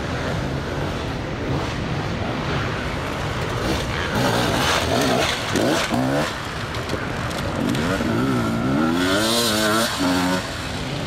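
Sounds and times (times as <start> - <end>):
motorcycle engine revving: 3.4 - 11.0.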